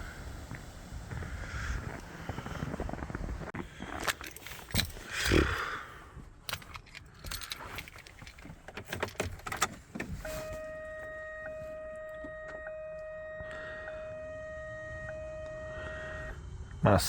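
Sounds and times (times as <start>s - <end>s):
keys jangling: 4.0s - 5.4s, 6.4s - 9.8s
electronic warning tone: 10.4s - 16.4s.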